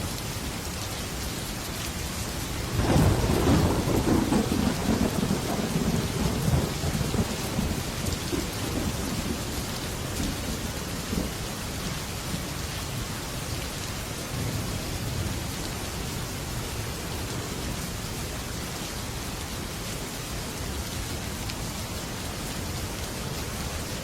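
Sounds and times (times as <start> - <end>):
rain drumming on a metal roof: 0.0 - 24.0
rolling thunder: 2.6 - 11.5.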